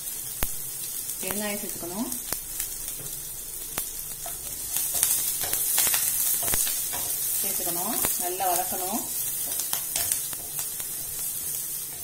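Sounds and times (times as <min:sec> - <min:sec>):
seeds sizzling in hot oil: 0:00.0 - 0:12.0.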